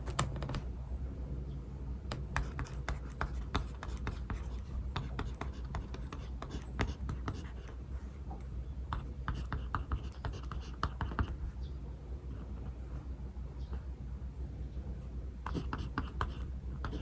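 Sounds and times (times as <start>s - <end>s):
steady low hum: 0.0s - 17.0s
pen scratching on paper: 2.1s - 8.2s, 8.9s - 11.6s, 15.5s - 17.0s.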